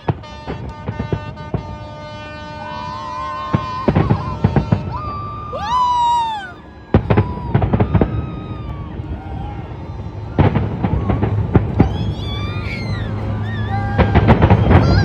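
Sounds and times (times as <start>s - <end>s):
fireworks bangs and crackles: 0.0s - 1.9s, 3.4s - 6.2s, 6.9s - 15.0s
gliding whistles: 2.7s - 15.0s
low rumble: 6.8s - 15.0s.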